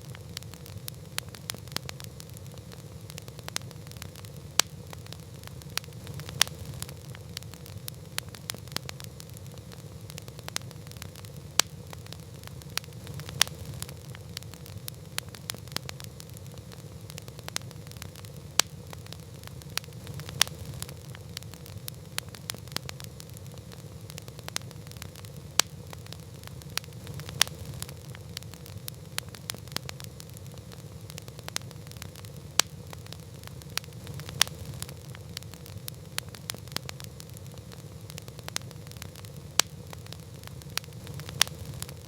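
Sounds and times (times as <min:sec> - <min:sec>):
campfire crackling and popping: 0:00.0 - 0:42.0
low fire rumble: 0:00.0 - 0:42.0.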